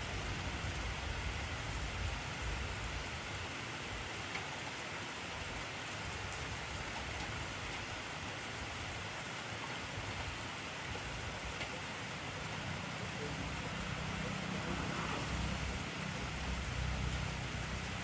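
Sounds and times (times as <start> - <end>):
faint raindrop ticks: 4.2 - 4.6, 6.3 - 8.3, 11.4 - 13.8
heavy rain hissing: 5.3 - 18.0.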